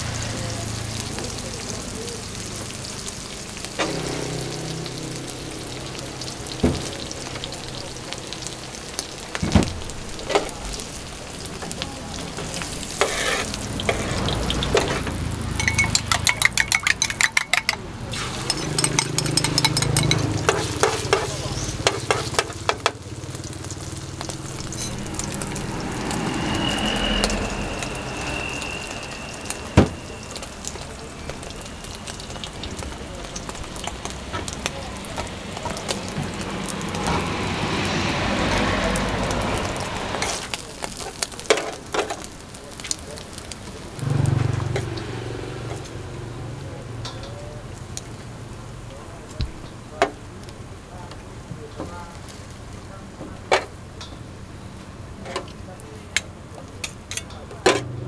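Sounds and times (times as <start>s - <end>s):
food sizzling on a griddle: 0.0s - 16.3s, 17.9s - 57.8s
spatula and tongs knocking on steel: 15.6s - 17.8s, 18.5s - 23.0s.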